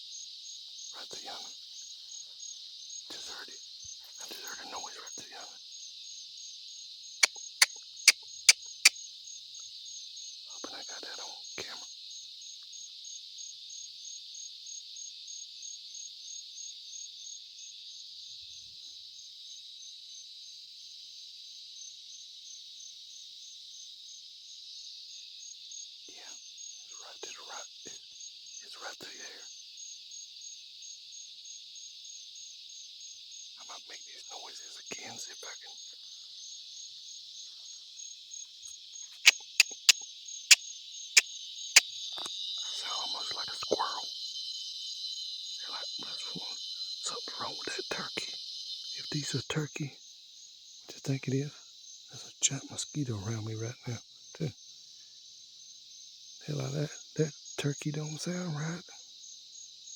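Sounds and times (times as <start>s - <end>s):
insects trilling: 0.0s - 59.9s
mouth-made turkey clucks: 7.2s - 8.9s, 39.1s - 40.0s.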